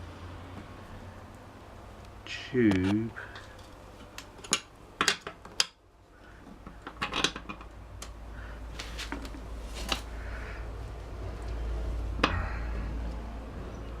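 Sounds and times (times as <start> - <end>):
low hum: 9.4 - 14.0.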